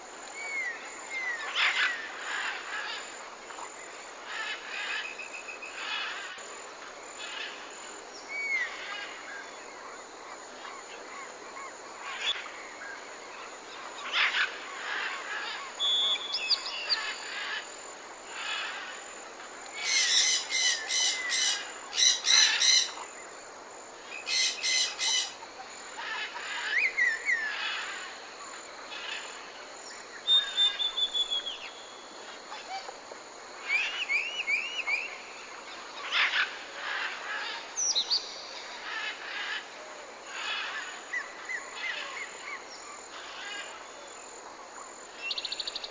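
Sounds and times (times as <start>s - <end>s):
steady high hiss: 0.0s - 45.9s
tropical birds calling: 19.7s - 23.2s, 24.0s - 28.2s.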